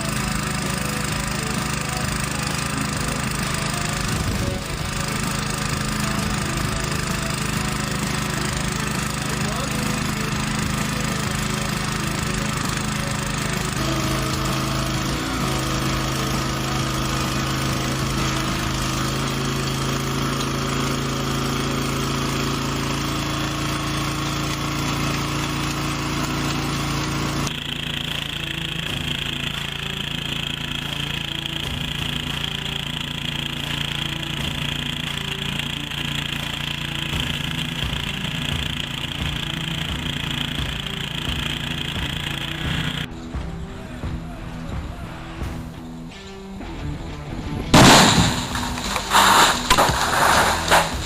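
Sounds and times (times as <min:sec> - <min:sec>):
heavy machinery engine drone: 0:00.0 - 0:51.0
mechanical rattle: 0:47.8 - 0:51.0.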